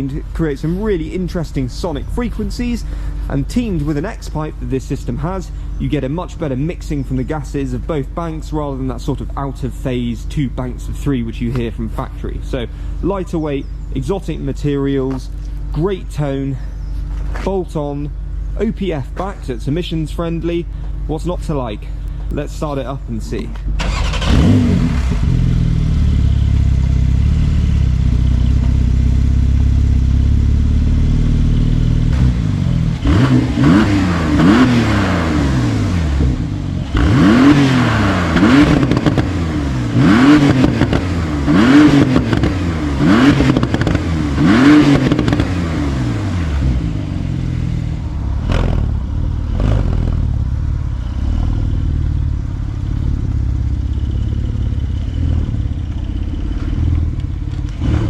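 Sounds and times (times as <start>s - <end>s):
sports car engine idling and revving: 0.0s - 58.0s
exhaust pops: 10.6s - 12.5s, 18.7s - 27.3s, 31.6s - 47.5s, 48.3s - 58.0s.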